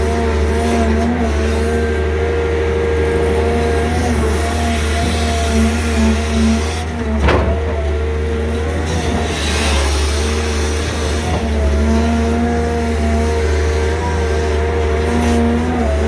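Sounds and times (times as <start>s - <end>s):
excavator diesel engines running: 0.0s - 16.0s.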